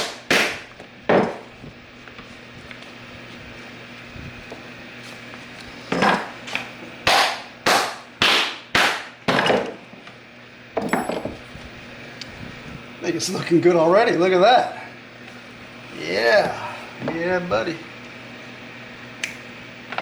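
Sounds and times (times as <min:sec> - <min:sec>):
leather glove being pounded: 0:00.0 - 0:00.7, 0:07.1 - 0:09.2.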